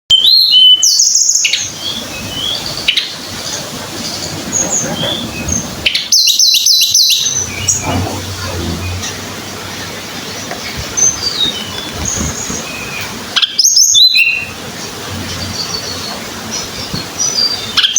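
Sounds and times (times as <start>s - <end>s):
low steady hum: 7.2s - 9.8s.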